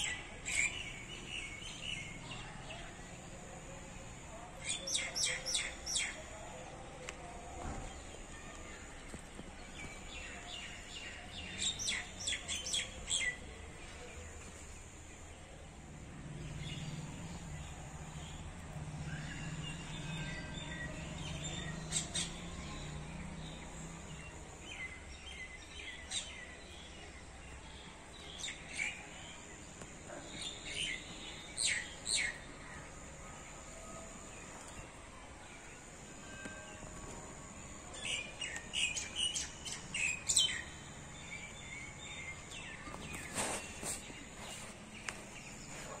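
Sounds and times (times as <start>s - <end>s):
birds chirping: 36.1s - 46.0s.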